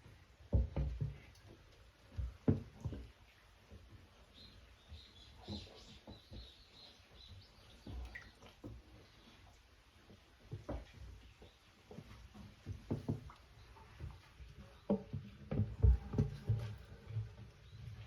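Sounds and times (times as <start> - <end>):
soft knocks and taps: 0.4 - 4.0, 10.1 - 17.5.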